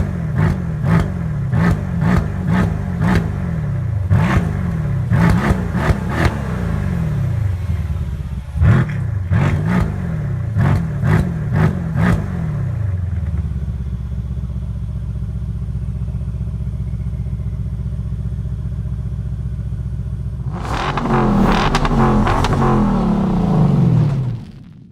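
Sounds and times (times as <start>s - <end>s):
car engine revving and idling: 0.0s - 24.9s
exhaust pops and crackles: 20.4s - 24.9s.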